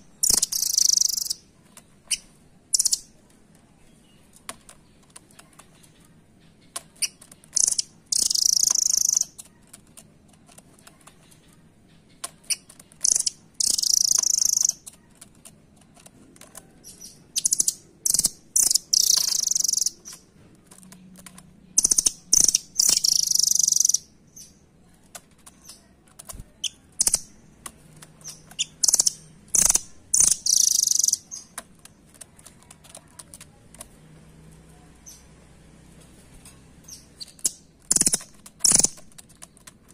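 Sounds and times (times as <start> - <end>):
nuthatch trilling: 0.0 - 1.4, 7.0 - 9.5, 12.5 - 14.9, 16.9 - 20.2, 21.8 - 24.5, 26.6 - 27.3, 28.2 - 31.5, 36.9 - 39.0.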